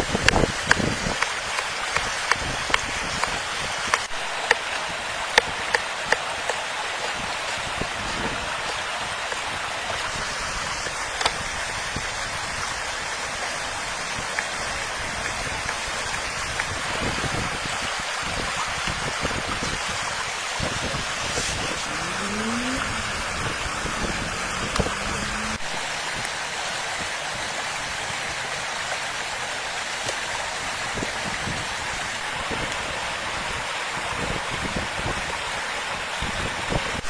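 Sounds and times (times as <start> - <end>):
rushing water: 0.0 - 37.0
brief rising tone: 21.7 - 25.9.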